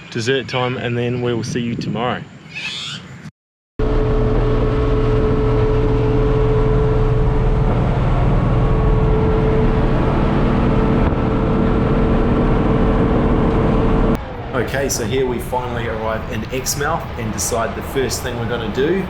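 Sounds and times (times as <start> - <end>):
truck diesel engine droning: 3.8 - 19.0.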